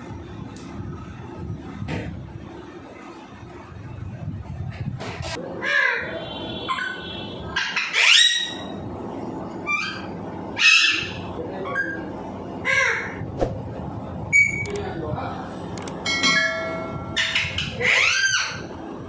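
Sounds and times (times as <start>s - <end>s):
parrot harsh calls and squawks: 5.5s - 8.8s, 9.6s - 13.2s, 17.2s - 18.8s.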